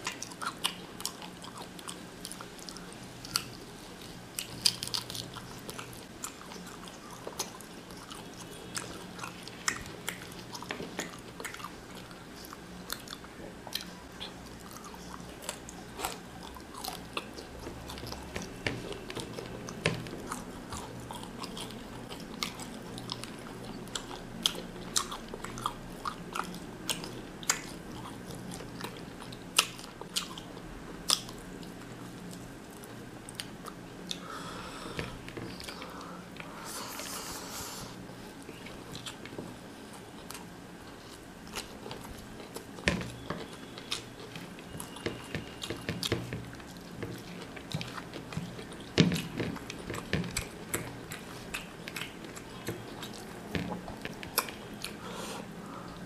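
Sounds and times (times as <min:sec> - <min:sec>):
low steady hum: 0:00.0 - 0:56.0
man chewing with wet smacks: 0:00.0 - 0:56.0.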